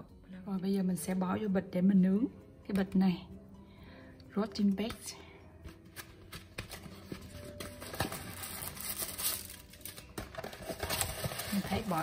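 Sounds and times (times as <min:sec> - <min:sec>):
plastic bag crinkling: 0:07.2 - 0:12.0.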